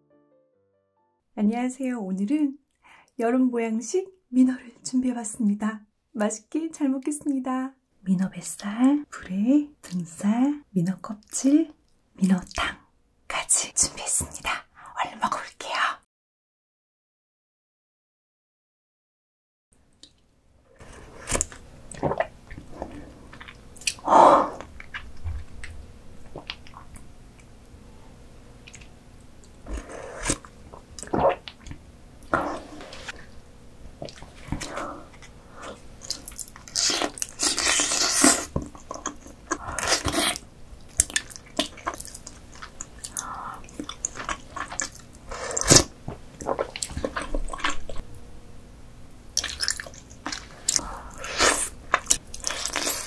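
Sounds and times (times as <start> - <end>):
chewing and biting: 34.0 - 48.0, 49.4 - 53.0.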